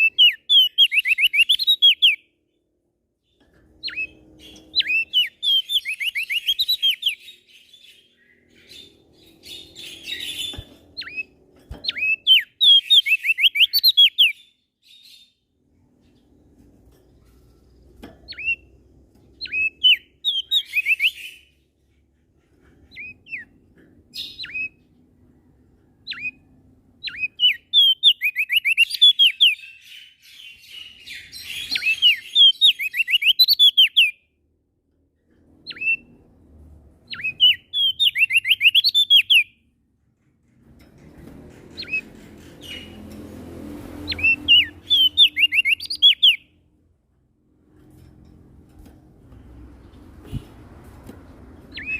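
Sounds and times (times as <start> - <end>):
songbird singing: 0.0 - 21.6, 22.8 - 34.3, 37.0 - 39.7, 41.5 - 46.6, 51.6 - 51.9.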